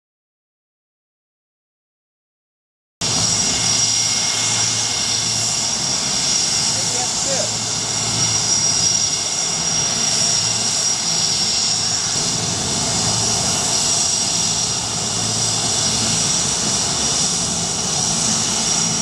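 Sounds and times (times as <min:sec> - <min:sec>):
aircraft engines running: 0:03.0 - 0:19.0
high steady whine: 0:03.0 - 0:19.0.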